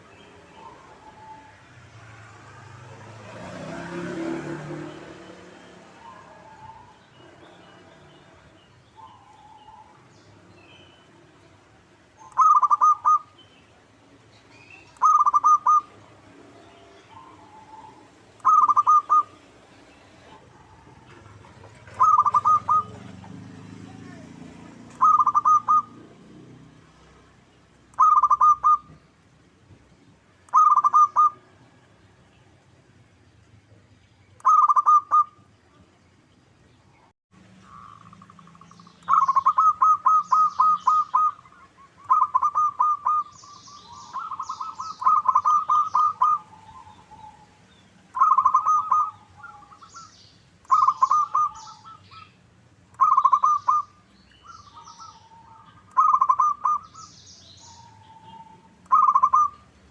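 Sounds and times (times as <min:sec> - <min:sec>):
dove cooing: 0:05.7 - 0:10.1, 0:12.2 - 0:13.4, 0:15.0 - 0:16.0, 0:17.1 - 0:19.5, 0:20.2 - 0:24.2, 0:24.9 - 0:26.2, 0:28.0 - 0:29.0, 0:30.5 - 0:31.4, 0:34.4 - 0:35.4, 0:37.7 - 0:47.5, 0:48.1 - 0:52.3, 0:53.0 - 0:57.0, 0:57.6 - 0:59.6.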